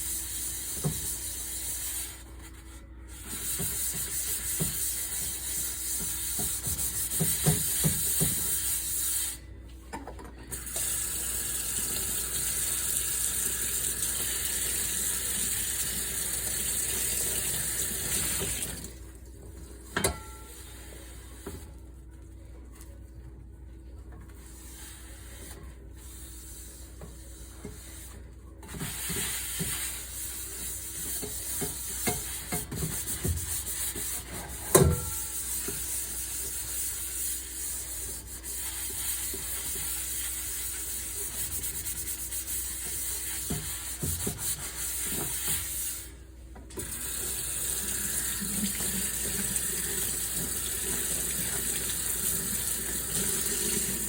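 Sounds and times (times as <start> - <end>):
tap water running into sink: 10.6 - 19.0, 46.8 - 54.0.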